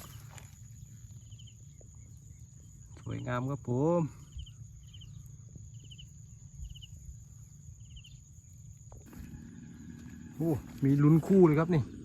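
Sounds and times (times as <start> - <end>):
cricket chirping: 0.0 - 12.0
high-pitched insect drone: 0.0 - 12.0.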